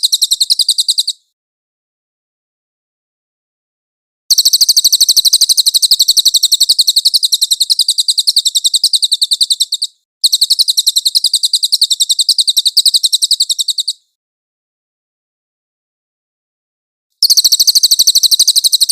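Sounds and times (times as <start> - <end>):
songbird rapid high trill: 0.0 - 1.3, 4.3 - 14.1, 17.2 - 18.9.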